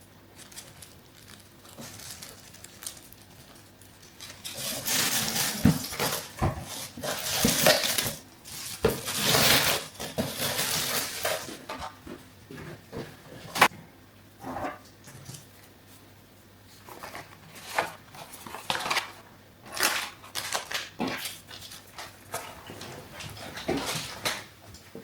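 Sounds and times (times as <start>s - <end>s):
packaging rustling and crinkling: 0.3s - 11.8s, 16.9s - 24.5s.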